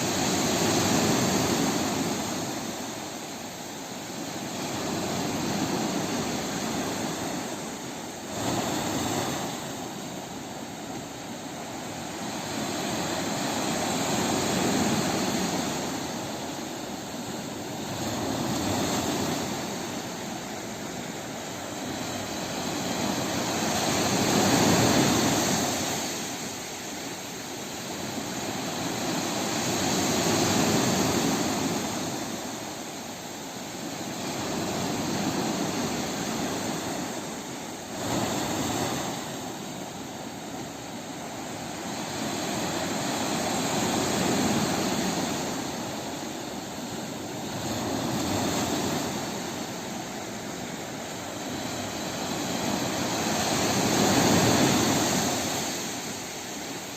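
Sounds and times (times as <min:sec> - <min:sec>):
sea waves washing in: 0:00.0 - 0:56.9.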